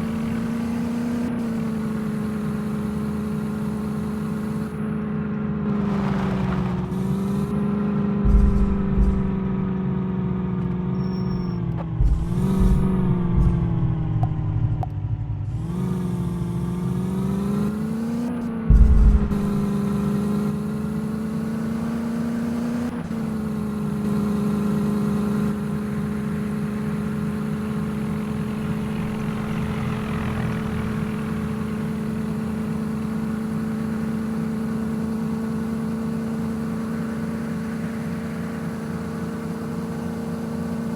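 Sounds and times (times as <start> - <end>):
tractor diesel engines under load: 0.0 - 40.9
short low thumps: 7.6 - 10.0, 11.1 - 15.1, 18.6 - 19.8, 28.4 - 31.5.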